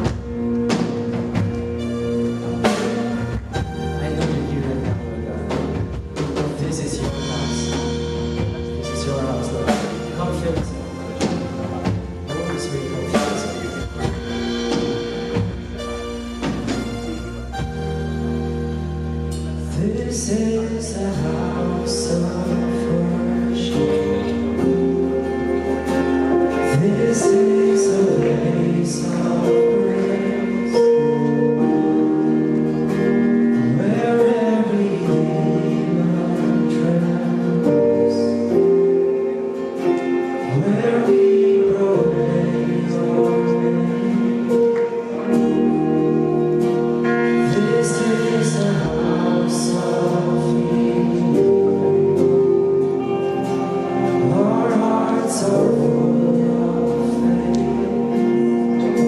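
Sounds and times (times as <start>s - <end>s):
sustained chords over low bass: 0.0s - 59.0s
voices singing: 19.8s - 32.9s, 33.5s - 59.0s.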